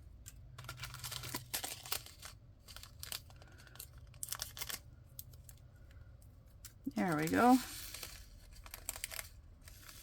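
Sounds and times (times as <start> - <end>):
thin plastic crinkling: 0.1 - 10.0.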